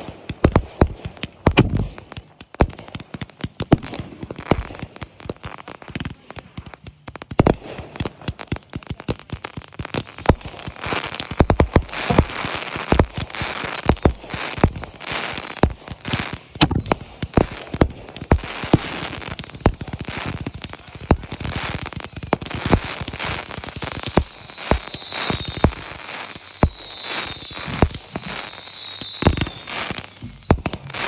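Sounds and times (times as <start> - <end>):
firework bangs: 0.0 - 31.0
crackling hiss: 9.3 - 31.0
falling firework whistles: 9.9 - 31.0.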